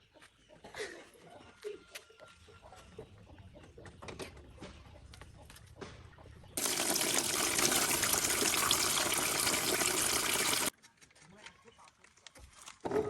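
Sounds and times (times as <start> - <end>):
water gushing from a tap: 6.6 - 10.7.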